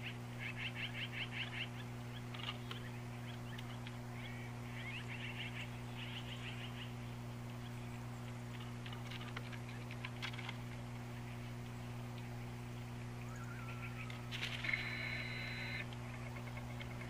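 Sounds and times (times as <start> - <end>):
small birds chirping: 0.0 - 17.0
steady low hum: 0.0 - 17.0.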